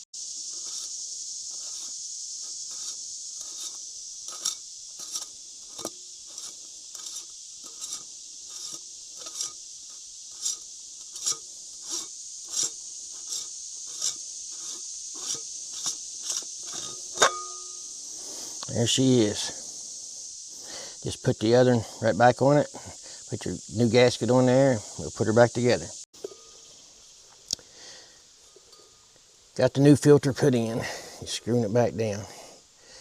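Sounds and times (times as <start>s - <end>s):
insects chirring: 0.0s - 33.0s
hand tools clicking and scraping metal: 0.4s - 18.7s, 26.2s - 27.6s, 28.4s - 29.4s.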